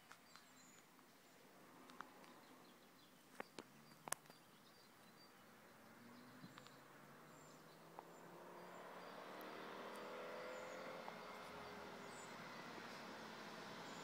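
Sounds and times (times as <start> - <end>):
approaching car engine: 5.4 - 14.0.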